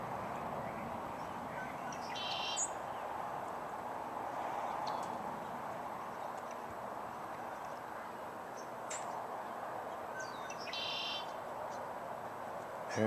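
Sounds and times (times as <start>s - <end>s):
blackbird chirping and singing: 0.6s - 3.0s, 10.1s - 11.4s.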